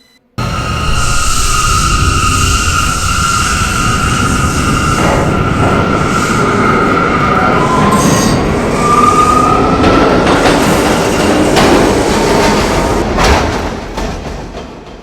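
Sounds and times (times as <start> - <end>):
train wheels squealing on rails: 0.4 - 11.6
train rumble and rail clatter: 0.4 - 15.0.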